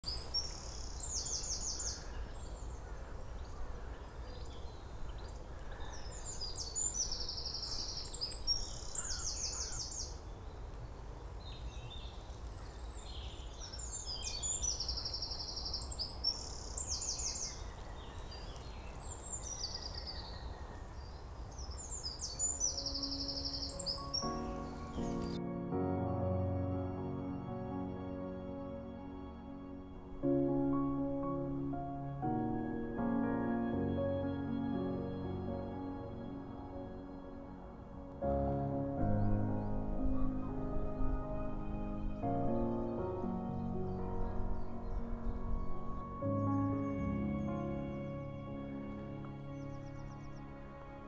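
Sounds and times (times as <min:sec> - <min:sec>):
songbird singing with trill: 0:00.0 - 0:10.8, 0:11.4 - 0:25.8, 0:29.2 - 0:51.0
faint bird calls: 0:00.2 - 0:10.2.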